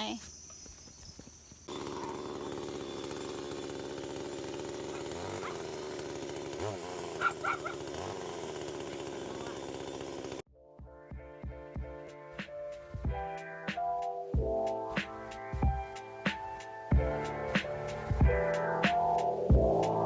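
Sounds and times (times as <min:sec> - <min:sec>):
small engine running: 0:01.7 - 0:10.4
dog barking: 0:04.9 - 0:05.7, 0:07.2 - 0:07.9.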